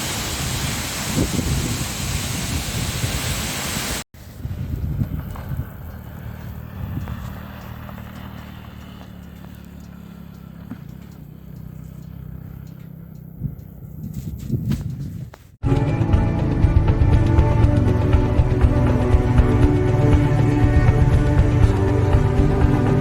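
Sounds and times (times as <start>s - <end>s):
loud steady hiss: 0.0s - 4.0s
motorcycle engine running: 4.4s - 23.0s
faint clicks and knocks: 7.0s - 15.0s.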